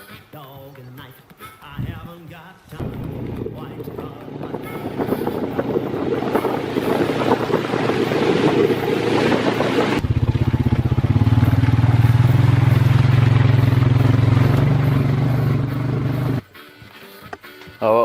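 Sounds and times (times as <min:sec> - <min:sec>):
rough rushing noise: 0:02.8 - 0:16.4
vehicle engine running: 0:02.8 - 0:16.4.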